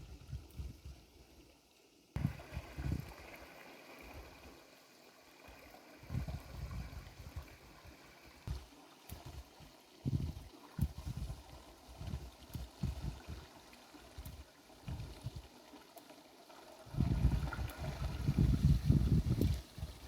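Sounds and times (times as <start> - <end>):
water gurgling and trickling: 0.0 - 20.0
wind buffeting microphone: 2.2 - 3.2, 6.0 - 7.6, 10.0 - 13.5, 16.9 - 20.0.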